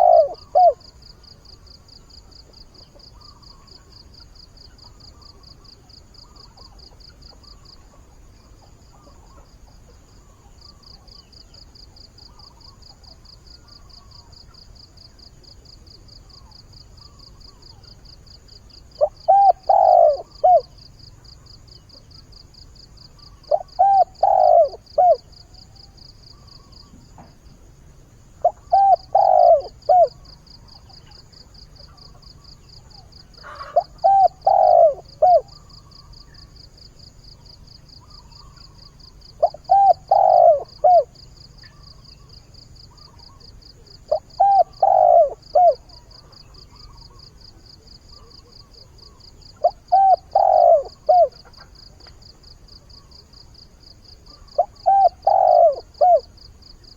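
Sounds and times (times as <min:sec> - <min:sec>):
dove cooing: 0:00.0 - 0:01.4, 0:18.9 - 0:20.8, 0:23.2 - 0:27.3, 0:28.4 - 0:36.5, 0:37.9 - 0:52.1, 0:54.2 - 0:56.4.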